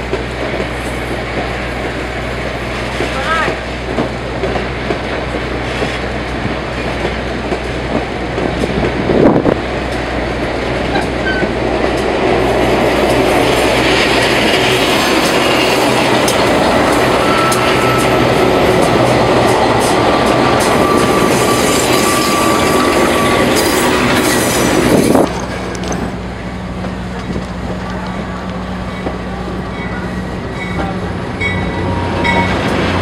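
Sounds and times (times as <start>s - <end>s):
diesel locomotive passing: 0.0s - 33.0s.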